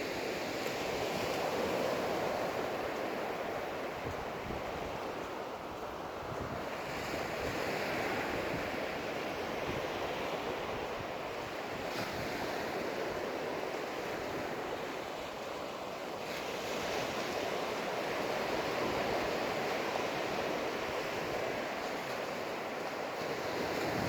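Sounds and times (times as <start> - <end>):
ocean surf breaking on a beach: 0.0 - 24.0
wind rumbling on microphone: 0.8 - 15.4, 23.2 - 24.0.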